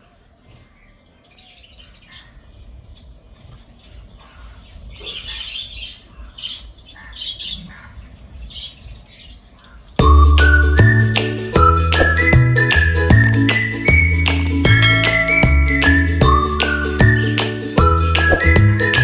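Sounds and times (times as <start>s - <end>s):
budgerigars chirping and chattering: 3.8s - 9.8s.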